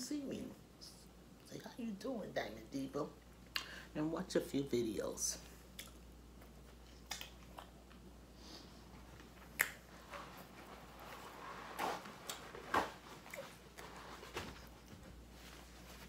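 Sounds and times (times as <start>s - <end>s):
mouth clicks and smacks: 5.7s - 8.0s, 9.5s - 9.9s
person chewing with mouth closed: 5.7s - 8.1s, 13.2s - 14.0s.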